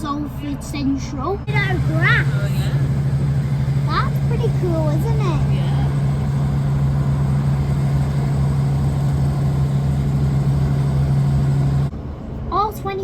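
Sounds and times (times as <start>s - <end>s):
train rumbling inside carriage: 0.0s - 13.0s.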